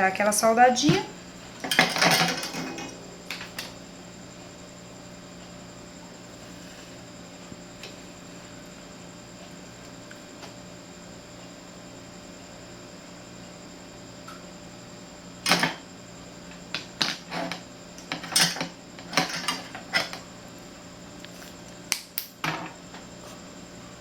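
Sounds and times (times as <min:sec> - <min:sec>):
faint electrical hum: 0:00.0 - 0:24.0.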